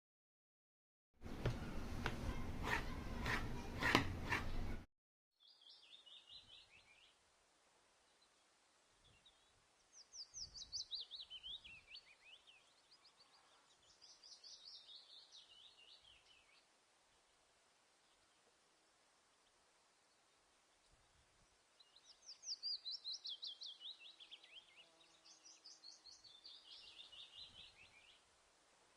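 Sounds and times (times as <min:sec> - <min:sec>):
bird singing trilled notes: 0:05.4 - 0:07.1, 0:21.8 - 0:28.2.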